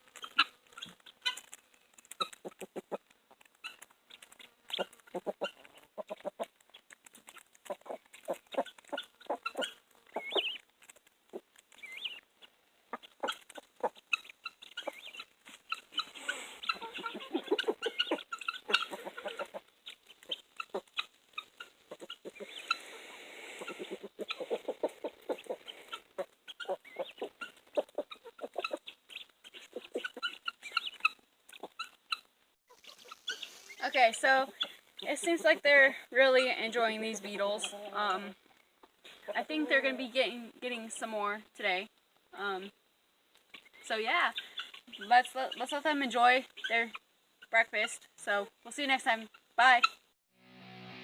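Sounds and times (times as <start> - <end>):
chickens clucking: 0.0 - 40.2, 43.5 - 48.1.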